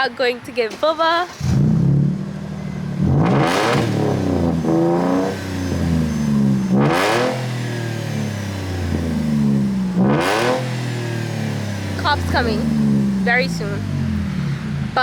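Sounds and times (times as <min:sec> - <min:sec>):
vehicle engine revving: 0:01.2 - 0:15.0.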